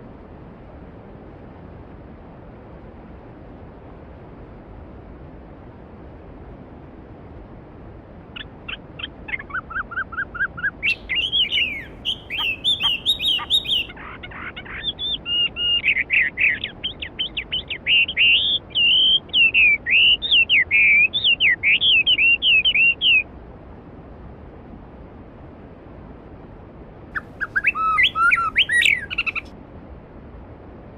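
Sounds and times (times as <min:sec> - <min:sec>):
songbird singing: 0:08.4 - 0:23.2, 0:27.2 - 0:29.5.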